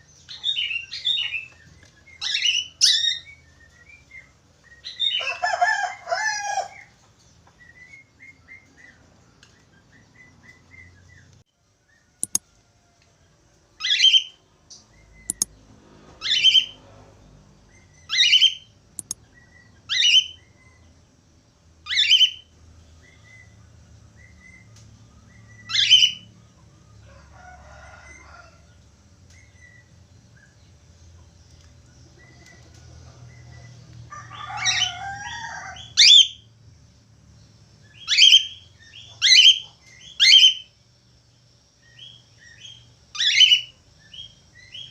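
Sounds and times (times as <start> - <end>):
faint bird chirps: 13.8 - 15.6.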